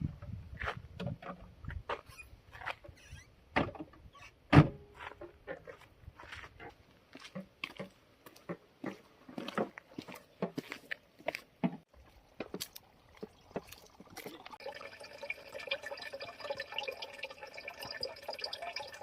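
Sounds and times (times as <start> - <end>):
water trickling and dripping: 12.0 - 19.0
ringing stream of water: 12.8 - 19.0.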